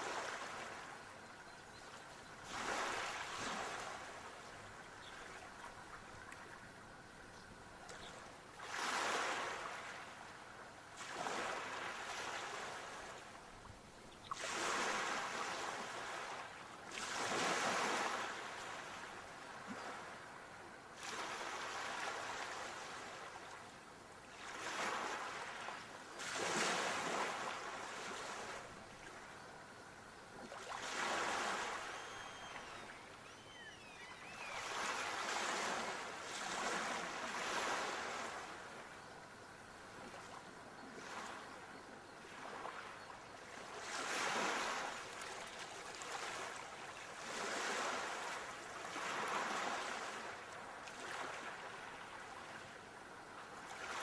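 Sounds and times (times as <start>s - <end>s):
sea waves breaking on shore: 0.0s - 0.9s, 2.4s - 6.6s, 8.6s - 10.2s, 10.9s - 13.5s, 14.3s - 23.7s, 24.3s - 29.4s, 30.4s - 39.0s, 42.2s - 52.8s, 53.4s - 54.0s.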